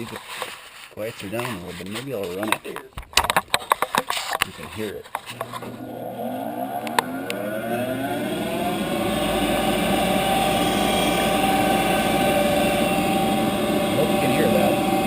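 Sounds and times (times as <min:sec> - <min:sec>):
blower motor whining: 0:05.3 - 0:15.0.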